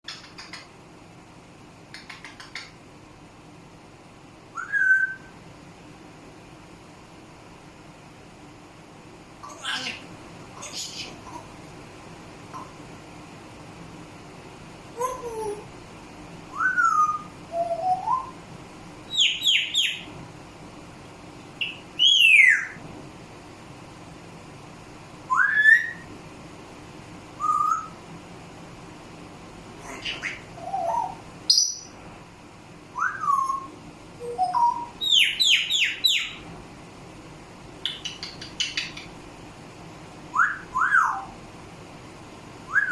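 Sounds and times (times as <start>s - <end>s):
parrot whistling: 4.6s - 5.3s, 16.5s - 18.4s, 25.3s - 26.1s, 27.4s - 28.0s, 30.0s - 31.9s, 33.0s - 36.4s, 40.3s - 41.3s, 42.7s - 42.9s.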